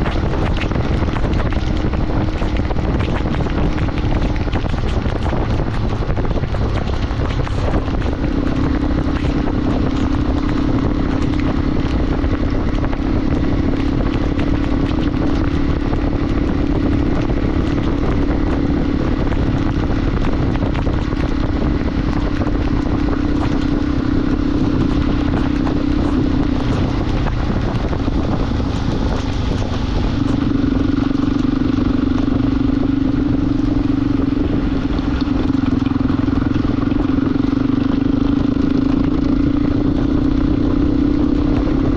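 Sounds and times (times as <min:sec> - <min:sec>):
motorcycle engine running: 0:00.0 - 0:41.9
wind and road noise: 0:00.0 - 0:41.9.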